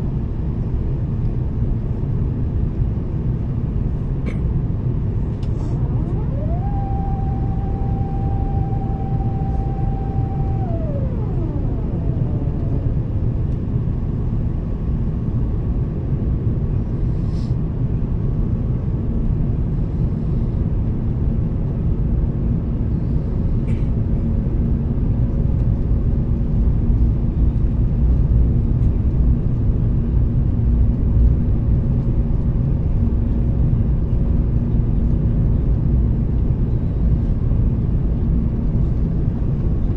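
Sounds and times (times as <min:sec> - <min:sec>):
airplane cabin rumble: 0:03.9 - 0:15.0
rising whine: 0:05.2 - 0:14.4.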